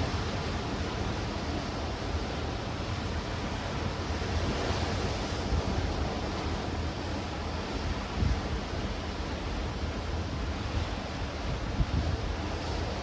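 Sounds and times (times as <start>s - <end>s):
wind buffeting microphone: 8.0s - 13.0s.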